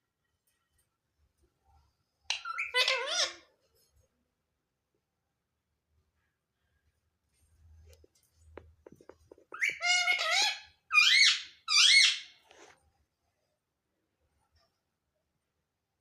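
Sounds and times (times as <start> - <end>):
parrot squawking: 2.3 - 3.5, 9.6 - 12.4.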